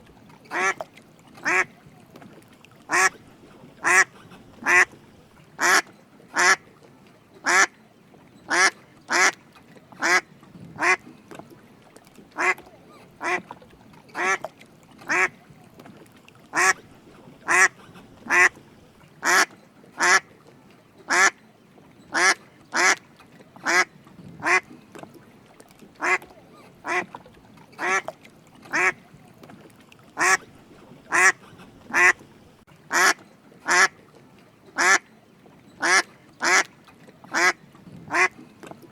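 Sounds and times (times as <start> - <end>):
duck quacking: 0.5 - 0.8, 1.4 - 1.7, 2.9 - 3.2, 3.8 - 5.0, 5.6 - 5.8, 6.4 - 6.6, 8.5 - 9.4, 12.4 - 12.6, 13.2 - 13.4, 14.2 - 14.5, 15.1 - 15.3, 16.5 - 16.8, 17.4 - 18.6, 19.2 - 20.2, 22.2 - 23.0, 23.6 - 24.6, 26.0 - 27.1, 27.8 - 28.1, 28.7 - 29.0, 30.2 - 30.5, 31.1 - 32.3, 32.9 - 33.9, 34.8 - 35.0, 35.8 - 36.7, 37.3 - 38.4.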